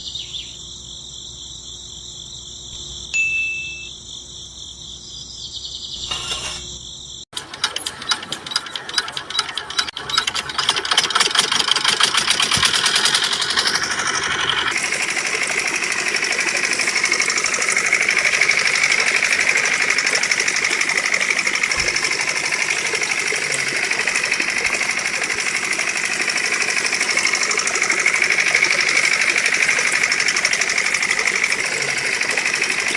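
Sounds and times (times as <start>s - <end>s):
model engine buzzing: 6.0s - 6.7s, 7.4s - 32.9s.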